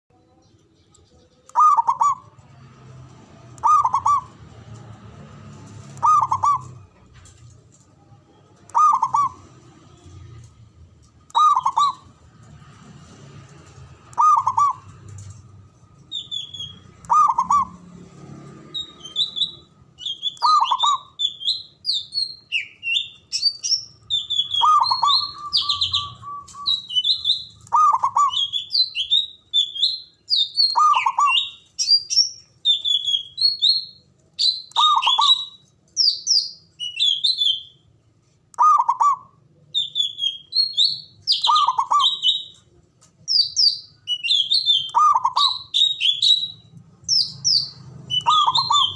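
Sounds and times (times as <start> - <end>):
small birds chirping and trilling: 0.1 - 48.9
dove cooing: 1.6 - 2.3, 3.6 - 4.4, 6.0 - 7.0, 8.7 - 9.6, 14.2 - 15.2, 17.1 - 17.9, 24.5 - 26.7.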